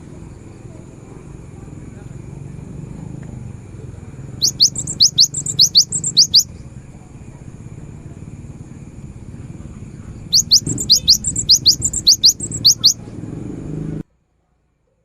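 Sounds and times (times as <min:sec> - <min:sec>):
steady low hum: 0:00.0 - 0:14.6
bird whistling sharp rising notes: 0:04.4 - 0:06.5, 0:10.2 - 0:13.0.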